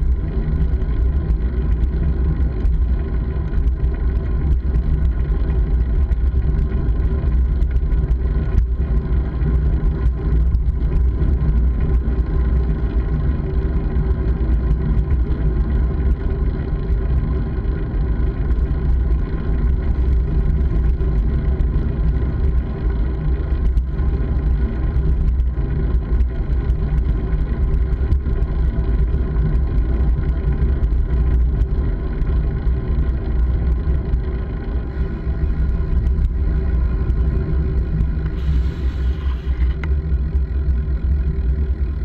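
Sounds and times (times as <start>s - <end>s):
small rattles and ticks: 0.0s - 42.0s.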